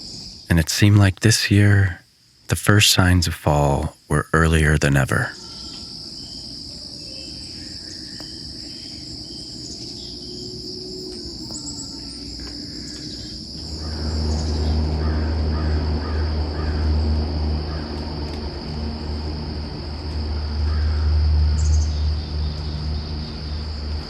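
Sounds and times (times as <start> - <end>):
crickets trilling: 0.0 - 24.0
crow cawing: 12.0 - 17.0, 17.7 - 18.0, 20.6 - 21.2
low steady rumble: 13.6 - 24.0.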